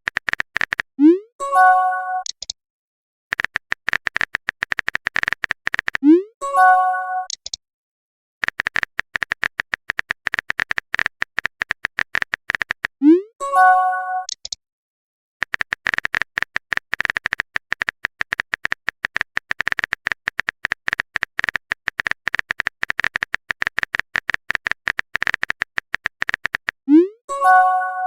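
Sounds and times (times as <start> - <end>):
phone keyboard typing clicks: 0.0 - 1.0, 3.3 - 6.0, 8.4 - 13.0, 14.3 - 14.6, 15.4 - 26.9.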